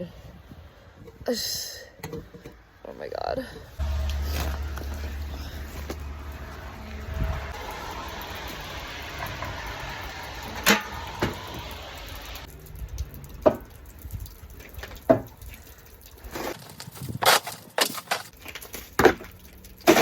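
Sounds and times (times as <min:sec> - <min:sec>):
ice scraping and knocking: 0:16.3 - 0:20.0.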